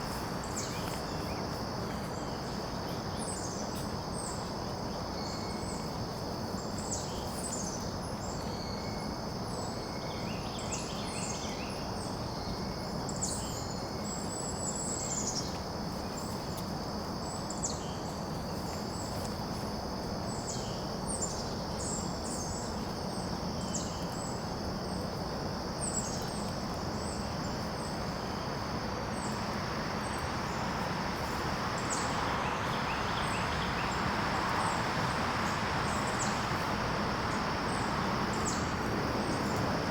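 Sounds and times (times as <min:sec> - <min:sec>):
high insect drone: 0:00.0 - 0:39.9
low background rush: 0:26.8 - 0:39.9.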